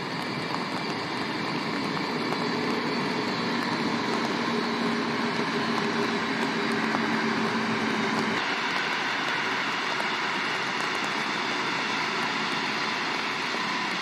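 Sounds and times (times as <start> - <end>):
train rumbling on rails: 0.0 - 14.0.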